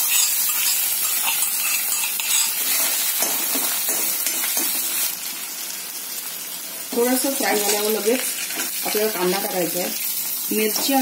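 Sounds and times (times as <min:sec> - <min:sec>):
steel spoon scraping and clinking: 0:00.0 - 0:04.7
paste sizzling in hot oil: 0:00.0 - 0:11.0.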